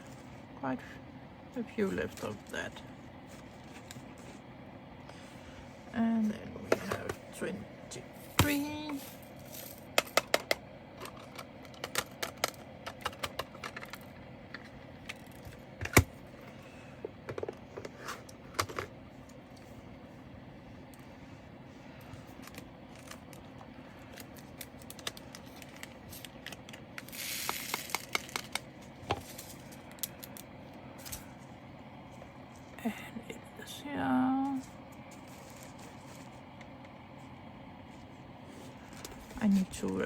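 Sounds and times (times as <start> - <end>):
beads rattling: 9.0 - 9.9.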